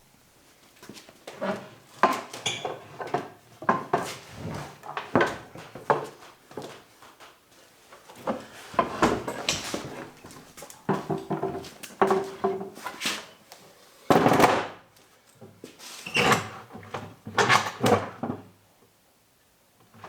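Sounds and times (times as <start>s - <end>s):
wood scraping: 8.3s - 13.0s.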